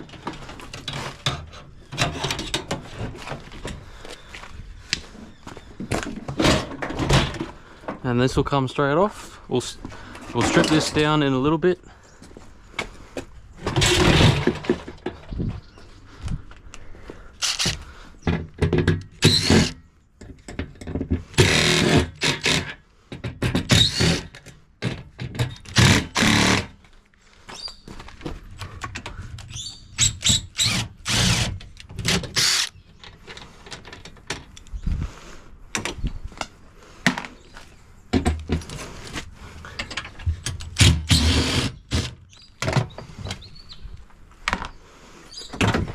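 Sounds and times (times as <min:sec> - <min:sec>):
clunks and knocks of metal parts: 0:00.0 - 0:04.2, 0:05.5 - 0:08.2, 0:09.8 - 0:11.5, 0:12.8 - 0:15.6, 0:17.4 - 0:34.8, 0:38.1 - 0:43.5, 0:45.4 - 0:45.9.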